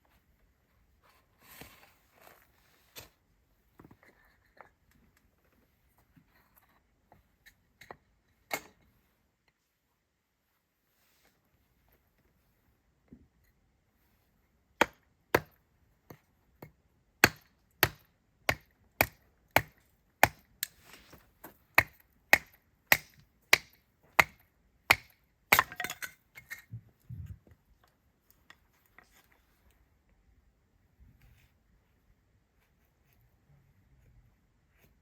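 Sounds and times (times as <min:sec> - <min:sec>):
axe chopping firewood: 0:14.8 - 0:15.6, 0:16.6 - 0:20.7, 0:21.5 - 0:26.1.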